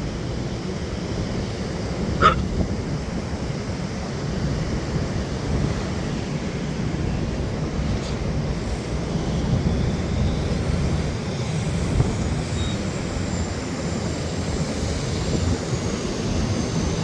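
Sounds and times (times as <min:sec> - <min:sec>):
wind buffeting microphone: 0:00.9 - 0:17.0
dog bark: 0:02.2 - 0:02.5.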